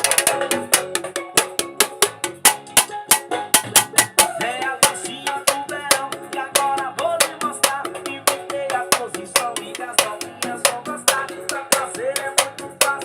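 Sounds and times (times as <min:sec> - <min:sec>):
drum and cymbal hits: 0:00.0 - 0:13.0.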